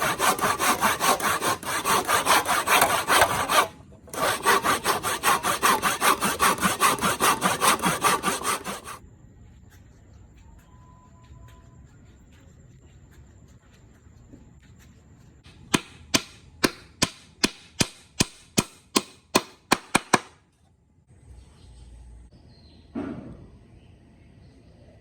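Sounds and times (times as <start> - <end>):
hammer striking wood: 15.7 - 20.4.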